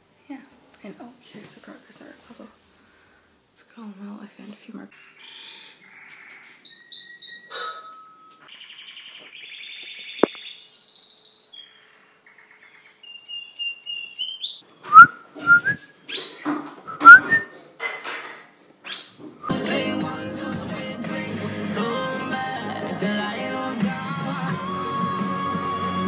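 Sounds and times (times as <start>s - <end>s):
pet bird singing: 6.6s - 7.6s, 8.5s - 17.4s.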